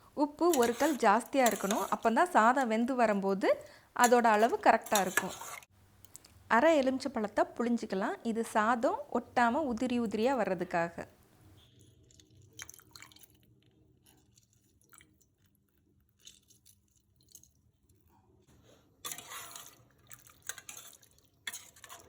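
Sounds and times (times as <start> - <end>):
scraping and rustling: 4.9 - 5.7
lemon squishing and dripping: 11.6 - 18.1.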